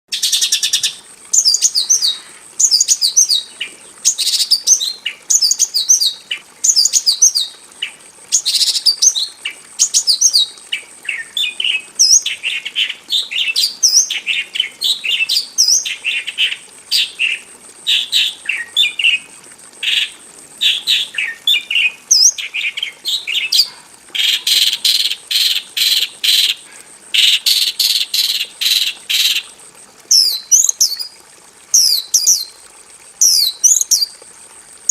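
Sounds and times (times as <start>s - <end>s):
lark singing chirps and trills: 0.1s - 7.5s, 19.9s - 26.6s, 30.1s - 31.1s, 31.8s - 32.6s, 33.2s - 34.1s.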